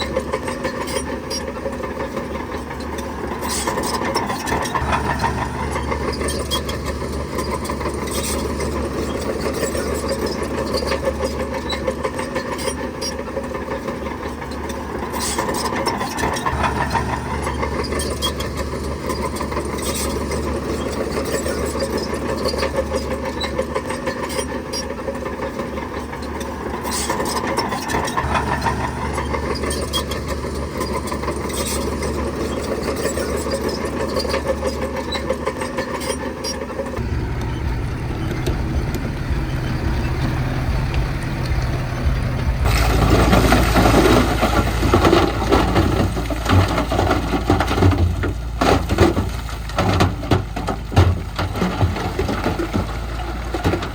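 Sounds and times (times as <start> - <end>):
bulldozer diesel engine working: 0.0 - 53.9
tracks and blade clanking on stone: 2.2 - 37.6.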